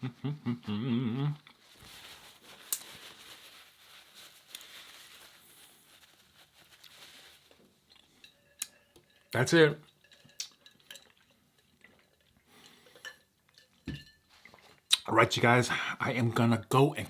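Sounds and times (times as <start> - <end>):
faint crinkling rustles: 1.5 - 14.9
person speaking: 9.4 - 9.8, 14.9 - 17.0.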